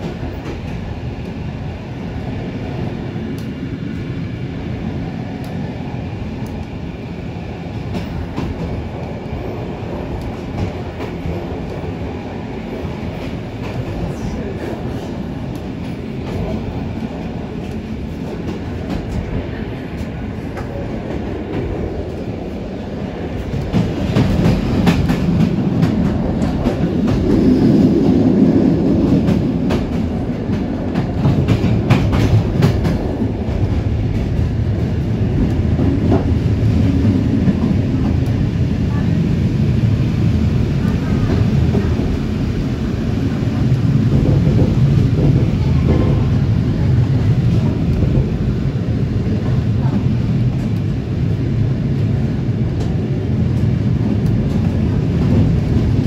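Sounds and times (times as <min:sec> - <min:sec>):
train rumbling on rails: 0:00.0 - 0:56.0.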